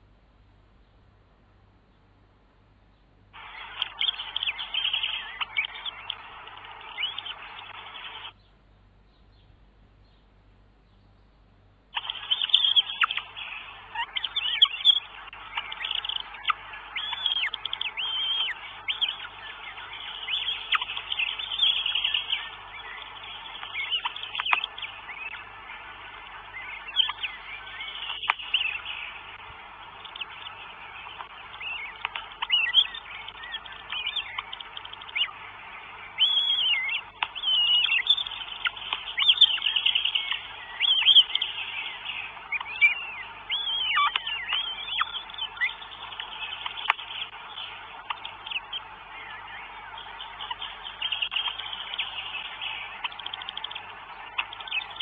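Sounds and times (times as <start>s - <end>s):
birds calling: 2.9s - 55.0s
sharp clicks: 11.9s - 13.4s, 32.0s - 32.9s, 53.0s - 54.8s.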